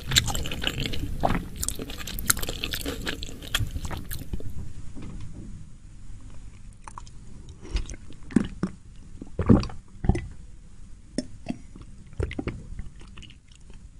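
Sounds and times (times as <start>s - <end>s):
person chewing food: 0.0s - 4.6s, 6.8s - 8.8s, 11.5s - 13.8s.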